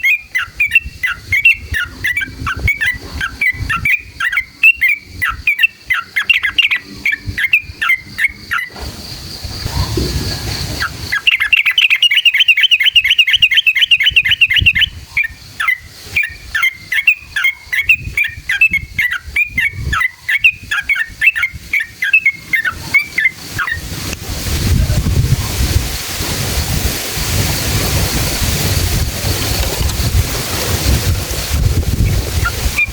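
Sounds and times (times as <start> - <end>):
bird chattering song and trill: 0.0 - 8.8, 10.8 - 23.9.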